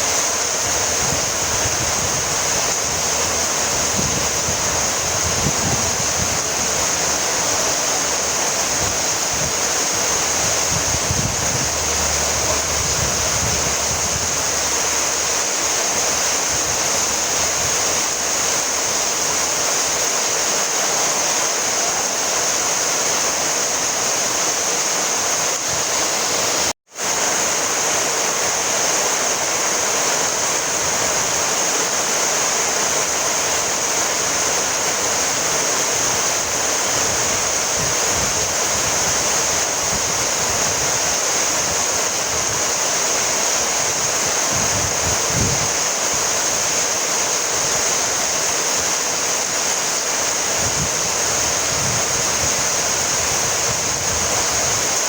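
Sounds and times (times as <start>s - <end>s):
dense rain hiss: 0.0s - 55.0s.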